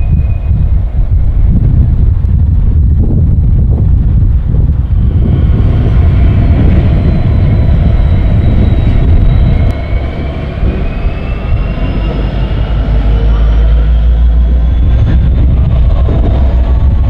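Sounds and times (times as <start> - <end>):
diesel freight train rumbling: 0.0 - 17.0
faint rising whine: 4.7 - 17.0.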